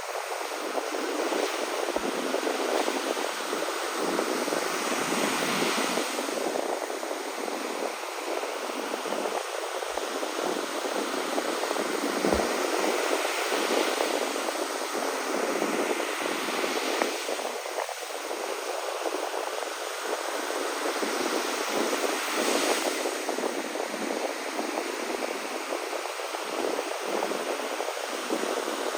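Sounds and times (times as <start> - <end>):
sea waves washing on shore: 0.0 - 28.9.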